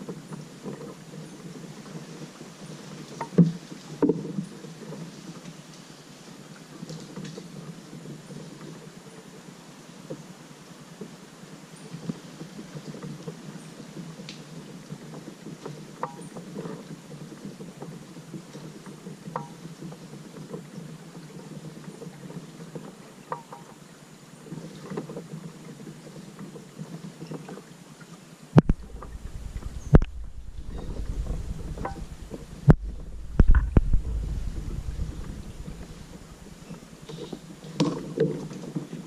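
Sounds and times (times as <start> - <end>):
water lapping around kayak: 0.0 - 39.0
loud thumps: 28.6 - 36.7.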